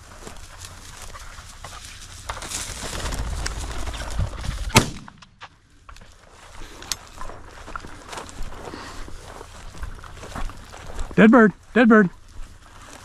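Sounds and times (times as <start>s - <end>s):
rustling: 0.0s - 11.2s, 12.2s - 13.0s
shotgun shot: 4.7s - 5.4s.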